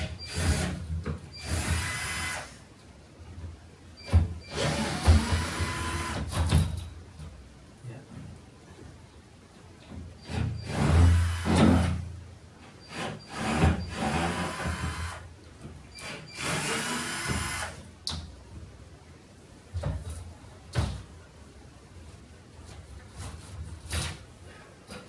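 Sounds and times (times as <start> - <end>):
cordless drill running: 16.0 - 17.8.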